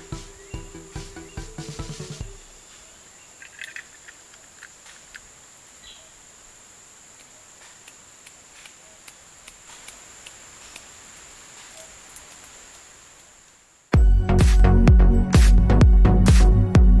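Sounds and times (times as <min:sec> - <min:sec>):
insects chirring: 0:00.0 - 0:14.0
faint clicks: 0:07.1 - 0:13.4.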